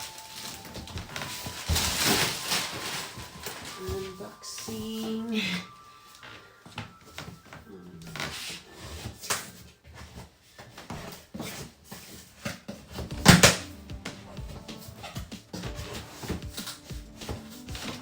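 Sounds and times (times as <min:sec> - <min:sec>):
cardboard rubbing and scraping: 0:08.1 - 0:18.0.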